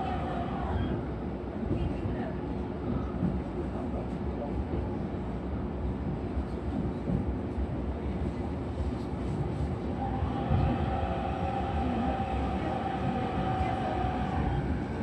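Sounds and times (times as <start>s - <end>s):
train wheels rumbling: 8.2s - 15.0s.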